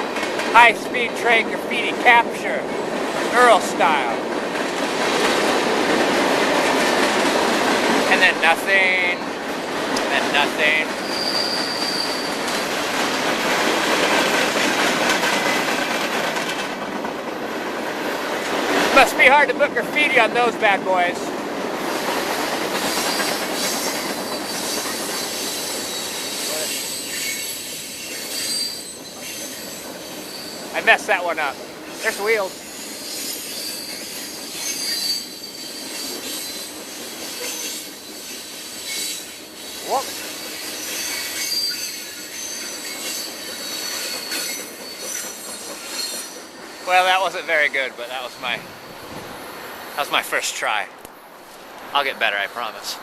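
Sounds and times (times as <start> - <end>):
train wheels rushing on rail: 0.0 - 53.0
high-pitched wheel squeal: 11.0 - 12.5, 22.9 - 30.7, 32.4 - 47.2.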